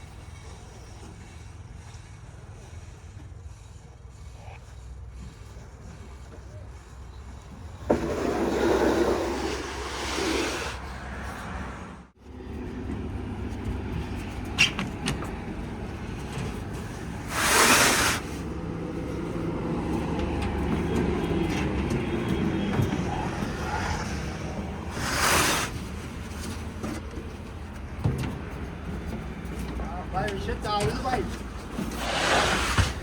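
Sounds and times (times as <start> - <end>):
engine humming: 4.9 - 33.0
loud hissing rushes: 32.0 - 33.0.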